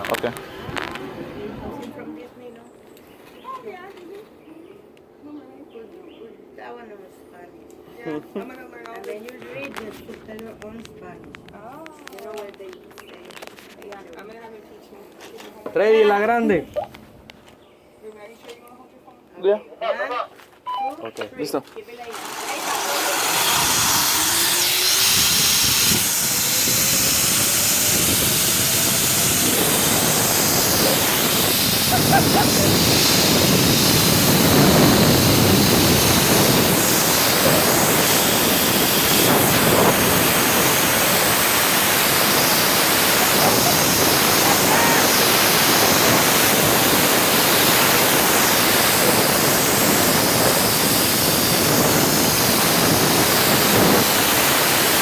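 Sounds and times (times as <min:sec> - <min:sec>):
wind rushing over microphone: 0:00.0 - 0:02.0, 0:23.0 - 0:55.0
zip-line pulley whine: 0:22.1 - 0:55.0.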